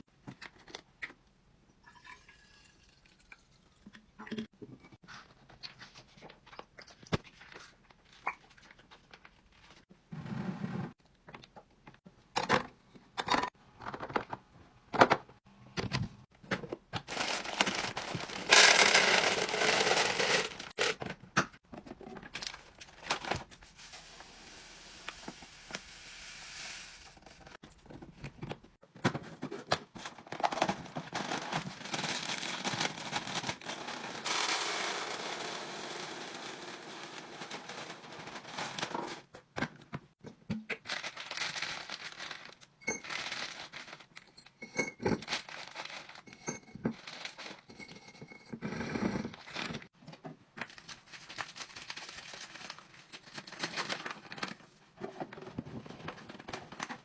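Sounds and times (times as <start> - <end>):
packaging crinkling and rustling: 17.0 - 21.0, 29.9 - 34.6, 40.8 - 44.2, 45.2 - 46.2, 50.6 - 54.7.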